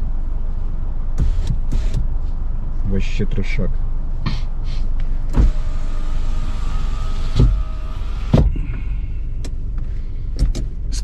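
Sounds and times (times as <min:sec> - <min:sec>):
power window motor whining: 0:01.2 - 0:02.1, 0:05.3 - 0:08.6
window motor thump: 0:01.2 - 0:02.1, 0:05.3 - 0:08.6.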